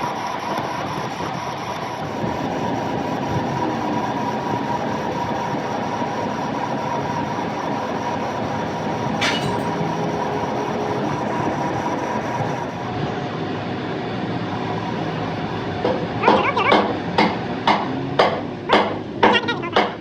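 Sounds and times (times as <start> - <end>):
mechanical workshop whine: 0.0 - 13.0.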